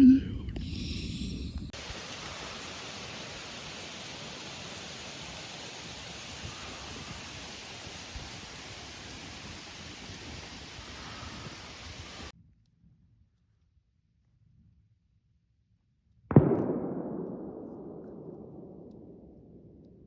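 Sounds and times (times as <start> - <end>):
hiss of rushing air: 0.7 - 12.3.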